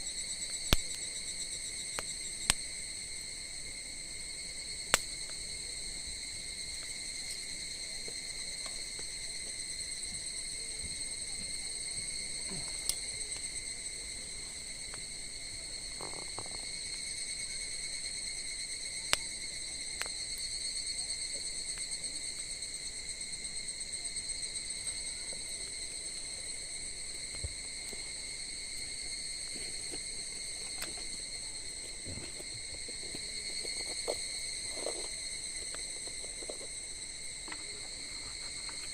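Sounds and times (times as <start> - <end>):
campfire pops: 0.4 - 3.6, 4.2 - 17.0, 18.8 - 20.6, 21.3 - 22.5, 24.8 - 38.9
insect trilling: 11.3 - 17.6, 24.8 - 38.9.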